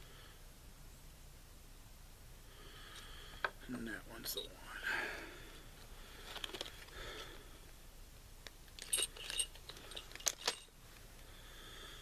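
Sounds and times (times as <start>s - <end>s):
metal tools clicking and clinking: 8.8s - 10.8s.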